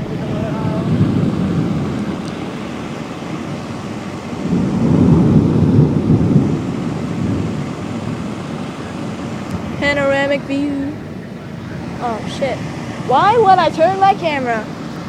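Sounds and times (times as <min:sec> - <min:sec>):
light rain hiss: 0:00.0 - 0:15.0
thunder rumbling: 0:00.0 - 0:15.0.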